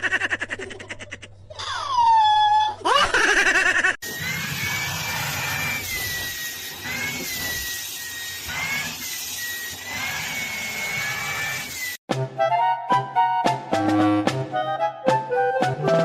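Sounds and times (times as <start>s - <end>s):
small electric motor whining: 4.0s - 12.0s.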